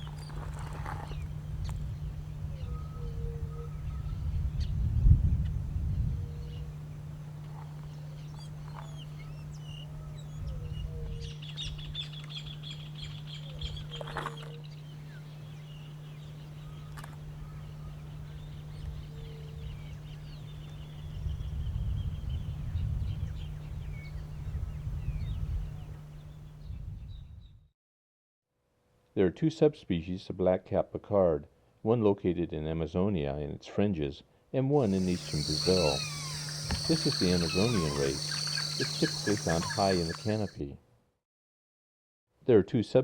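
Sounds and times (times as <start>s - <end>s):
birds chattering trills: 0.0s - 4.4s, 6.3s - 21.2s, 34.8s - 40.6s
steady low hum: 0.0s - 26.9s, 34.8s - 40.6s
low whistled bird notes: 34.8s - 40.6s
sharp clicks: 34.9s - 40.5s.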